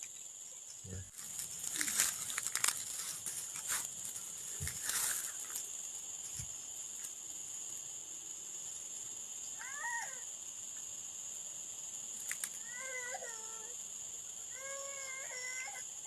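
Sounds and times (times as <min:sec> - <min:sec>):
insects droning: 0:00.0 - 0:16.0
clicks and rustle: 0:01.1 - 0:05.7, 0:12.2 - 0:12.6.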